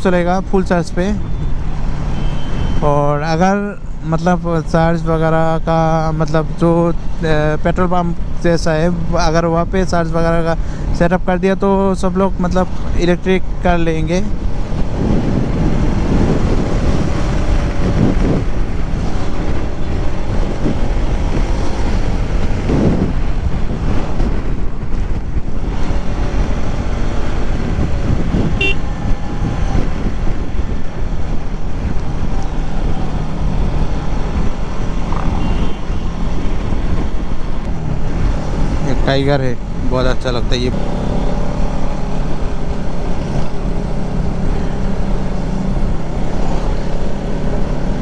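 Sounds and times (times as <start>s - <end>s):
wind noise on microphone: 11.8s - 48.0s
motorcycle engine running: 14.3s - 39.0s.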